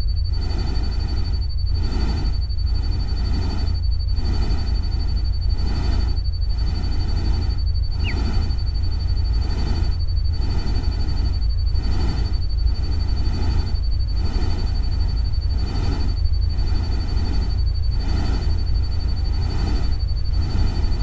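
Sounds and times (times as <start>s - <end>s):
thin high tone: 7.9s - 8.4s
short falling chirp: 7.9s - 8.5s.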